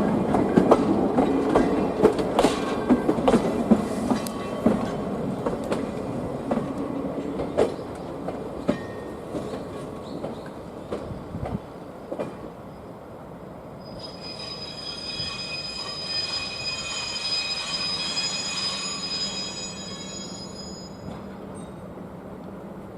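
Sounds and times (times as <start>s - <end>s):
high-pitched wheel squeal: 13.8s - 21.2s.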